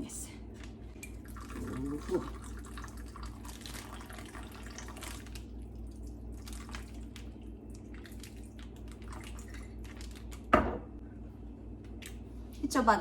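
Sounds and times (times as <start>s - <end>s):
steady low hum: 0.0s - 13.0s
vinegar dripping and splashing: 1.0s - 10.6s.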